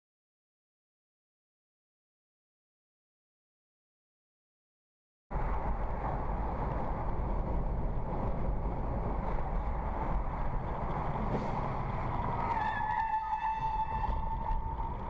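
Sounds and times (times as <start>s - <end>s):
car engine and road noise: 5.3s - 15.0s.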